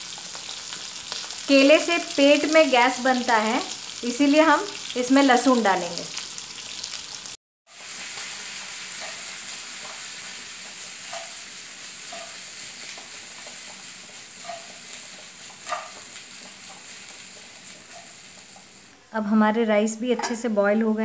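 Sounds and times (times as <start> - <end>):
banana slices sizzling in oil: 0.0 - 19.0.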